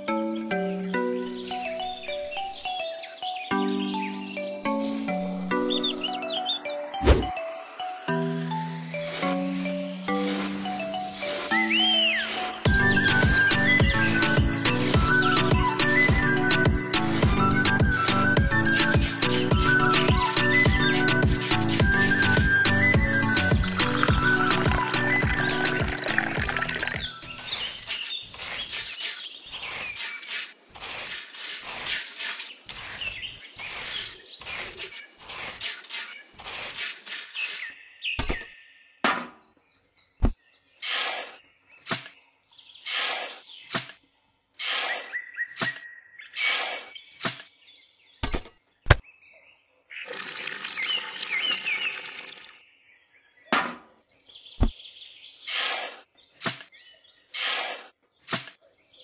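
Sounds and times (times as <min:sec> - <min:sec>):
birds chirping: 0:00.0 - 0:21.4, 0:22.0 - 0:59.0
trowel scraping wet cement: 0:27.4 - 0:37.8, 0:40.8 - 0:42.1, 0:42.8 - 0:43.9, 0:44.6 - 0:47.4, 0:55.5 - 0:56.7, 0:57.3 - 0:58.6.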